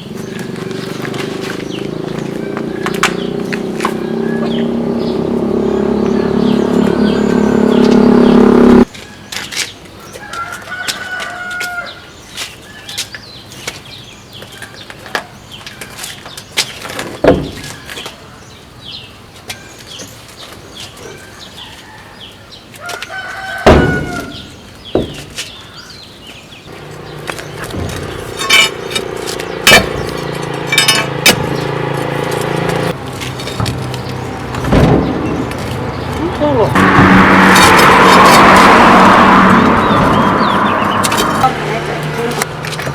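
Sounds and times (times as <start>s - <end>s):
steady machine hum: 5.3s - 8.9s, 26.7s - 33.1s
rooster crowing: 10.2s - 12.0s, 22.8s - 24.6s
metallic knocks and clanks: 26.7s - 36.2s.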